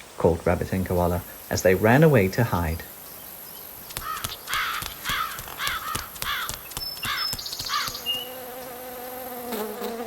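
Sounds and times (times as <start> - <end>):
repeated rising and falling bird calls: 1.1 - 8.8.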